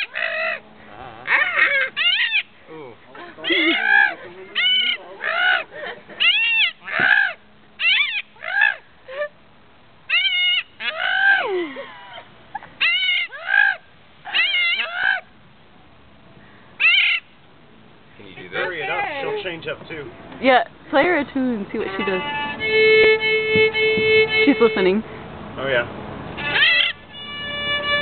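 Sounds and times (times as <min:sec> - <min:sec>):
bird calling rising and falling: 0:00.0 - 0:02.6, 0:03.4 - 0:09.3, 0:10.1 - 0:15.3, 0:16.8 - 0:17.4, 0:26.4 - 0:28.0.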